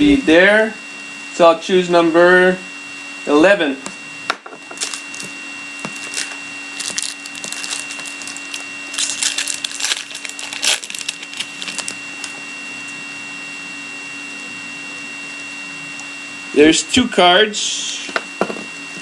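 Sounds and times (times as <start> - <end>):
steady electrical hum: 0.0 - 19.0
card pack wrapper crinkling: 4.7 - 12.4.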